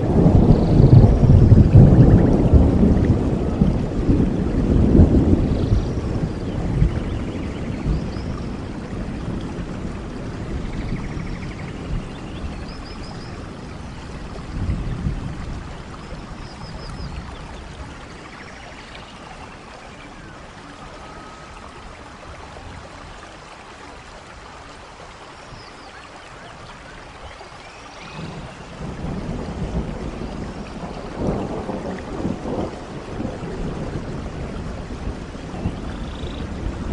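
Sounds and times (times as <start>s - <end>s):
steady rainfall: 0.0s - 36.9s.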